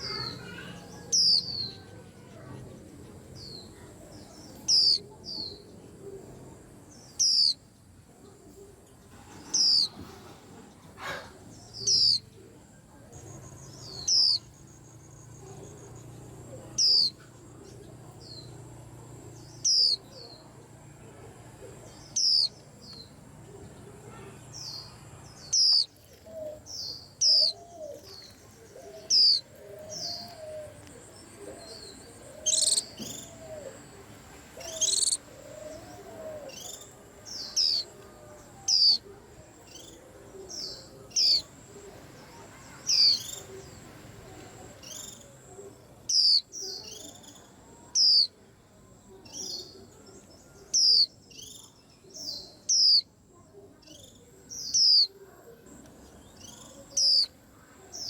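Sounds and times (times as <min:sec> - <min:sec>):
bird giving high chirps: 0:04.4 - 0:05.1, 0:13.4 - 0:14.9, 0:16.7 - 0:17.2, 0:19.6 - 0:20.1, 0:22.1 - 0:22.6, 0:24.6 - 0:26.0, 0:26.7 - 0:30.7, 0:31.7 - 0:33.4, 0:34.6 - 0:37.9.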